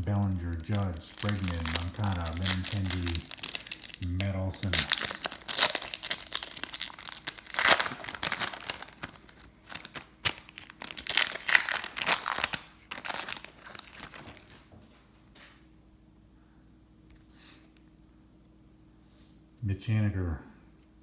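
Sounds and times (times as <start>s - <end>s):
wrapper crinkling and tearing: 0.0s - 14.6s.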